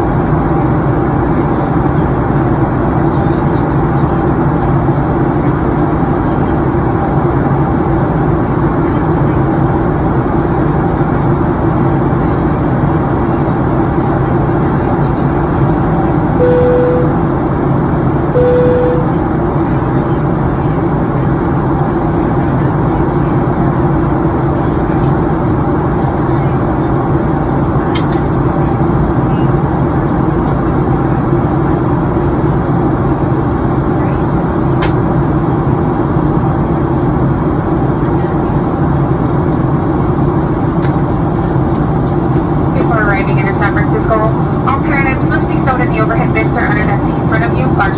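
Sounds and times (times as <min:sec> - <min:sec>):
aircraft engine and airflow noise: 0:00.0 - 0:47.9
short electronic tones: 0:16.4 - 0:17.2, 0:18.4 - 0:19.2.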